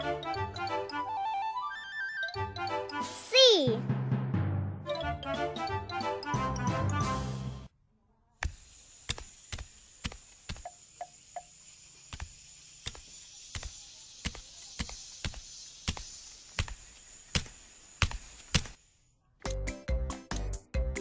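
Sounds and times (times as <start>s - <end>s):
steady hiss: 8.4s - 19.1s.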